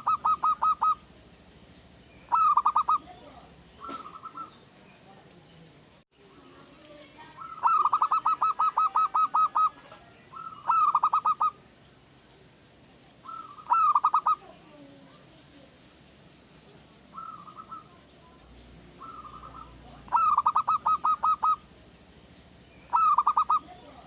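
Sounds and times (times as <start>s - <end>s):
dove cooing: 0.0s - 1.4s, 2.2s - 4.6s, 7.3s - 11.6s, 13.2s - 15.2s, 17.1s - 21.9s, 22.9s - 24.0s.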